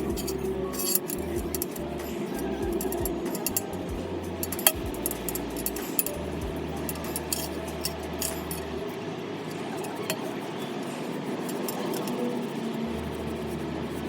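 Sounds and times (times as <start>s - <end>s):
light metallic clicks and clinks: 0.0s - 8.8s, 11.4s - 12.5s
steady rubbing on metal: 0.0s - 14.0s.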